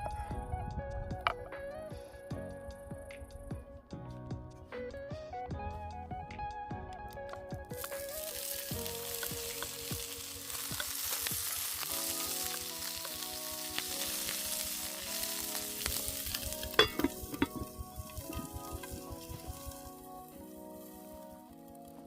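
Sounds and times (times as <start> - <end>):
soft background music: 0.0 - 22.0
crackles and clicks: 6.8 - 22.0
food sizzling in a pan: 7.8 - 21.3.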